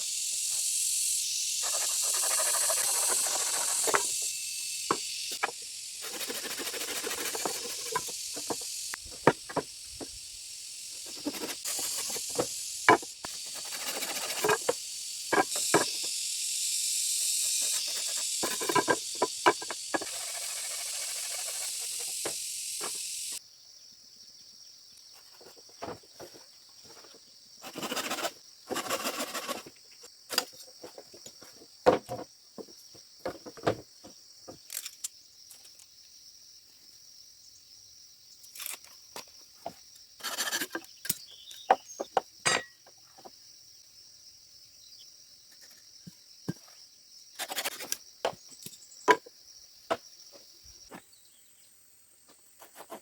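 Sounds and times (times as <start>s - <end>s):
high insect chorus: 0.0s - 53.0s.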